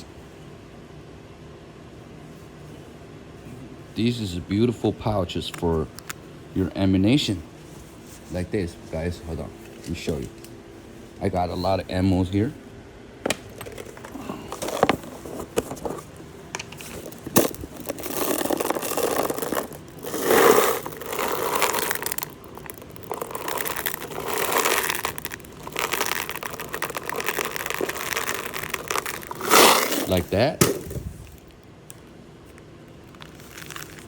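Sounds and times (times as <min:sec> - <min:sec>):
plastic packaging crinkling: 0:13.6 - 0:31.7, 0:32.4 - 0:34.0
scrapes: 0:16.7 - 0:31.4.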